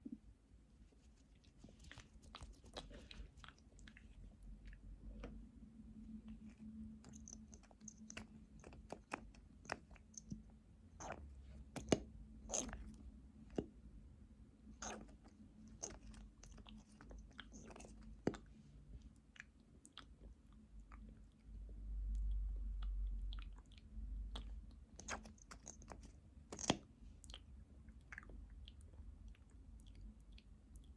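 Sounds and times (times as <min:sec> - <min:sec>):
faint steady hum: 0:00.0 - 0:30.9
lip smacks and tongue clicks: 0:01.4 - 0:05.4, 0:06.3 - 0:13.7, 0:19.2 - 0:30.9.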